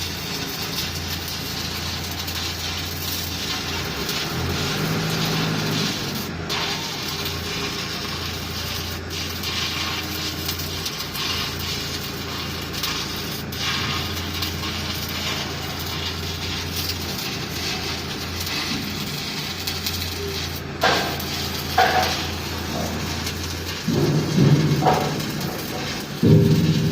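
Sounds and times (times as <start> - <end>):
welding arc crackling: 0.0 - 26.9
sharp knocks: 23.8 - 26.9.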